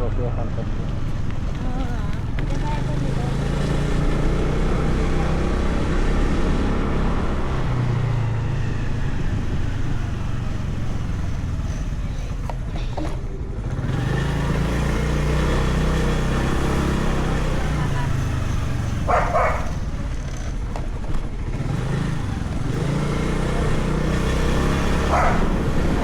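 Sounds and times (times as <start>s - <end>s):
motorcycle engine running: 0.0s - 26.0s
road noise: 0.0s - 26.0s
wind noise: 6.8s - 13.0s.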